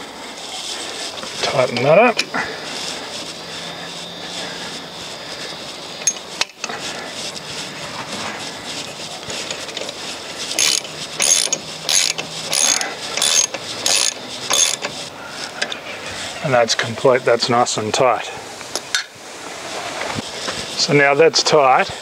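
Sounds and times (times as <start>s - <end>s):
ratchet wrench clicking: 10.6s - 14.9s.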